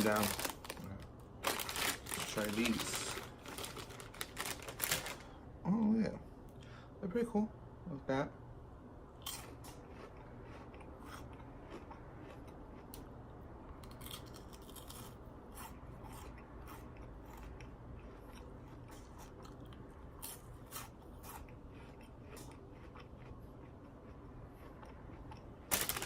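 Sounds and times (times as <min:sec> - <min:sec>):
person chewing crunchy snacks: 0:00.0 - 0:05.3, 0:09.2 - 0:13.2, 0:13.8 - 0:26.0.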